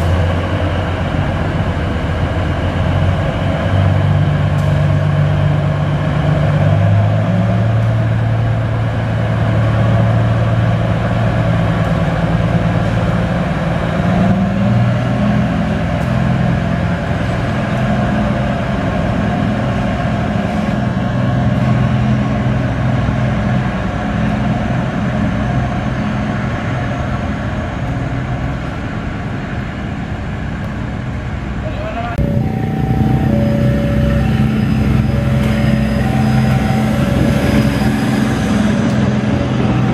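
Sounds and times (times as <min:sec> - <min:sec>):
diesel engine exhaust note: 0:31.3 - 0:39.9.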